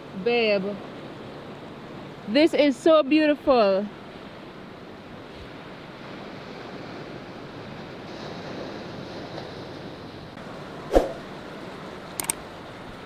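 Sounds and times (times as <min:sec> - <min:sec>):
sea rushing: 0:10.9 - 0:11.2
wind on microphone: 0:10.9 - 0:11.2.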